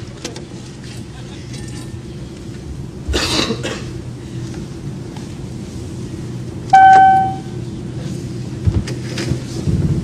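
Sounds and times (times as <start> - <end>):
airplane cabin hum: 0.0 - 10.0
call chime ding: 6.8 - 7.5.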